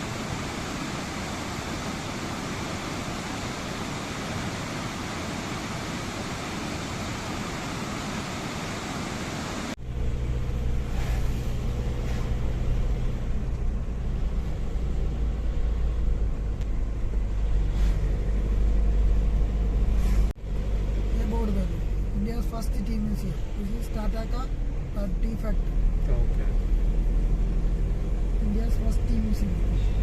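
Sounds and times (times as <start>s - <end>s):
waterfall rushing: 0.0s - 9.8s
car engine and road noise: 0.0s - 30.0s.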